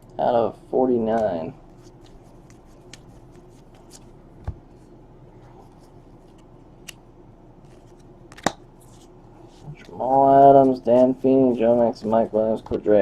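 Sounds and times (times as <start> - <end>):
trading cards being handled: 1.1 - 4.8, 7.6 - 12.9.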